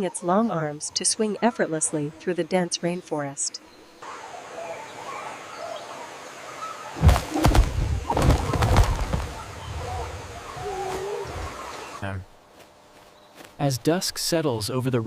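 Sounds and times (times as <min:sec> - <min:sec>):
rustling flapping noise: 0:07.0 - 0:11.9.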